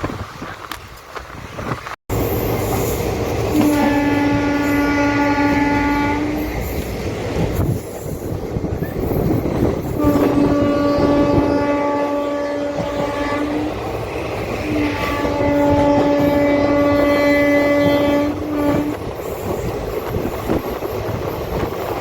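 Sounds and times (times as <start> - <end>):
train rumbling on rails: 0.0 - 22.0
train horn blasts: 3.4 - 6.6, 9.9 - 13.9, 14.6 - 19.0.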